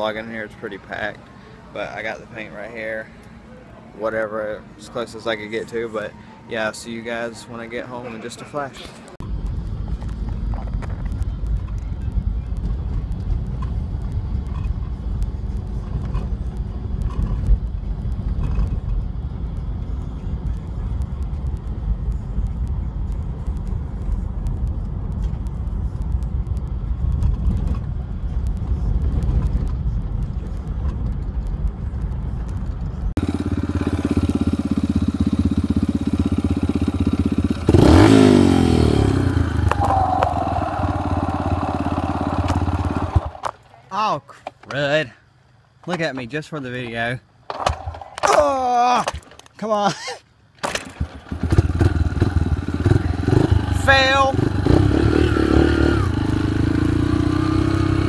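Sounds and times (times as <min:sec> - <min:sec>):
vehicle driving rumble: 0:09.0 - 0:43.8, 0:51.1 - 0:58.0
engine revving: 0:33.2 - 0:43.5, 0:51.3 - 0:58.0.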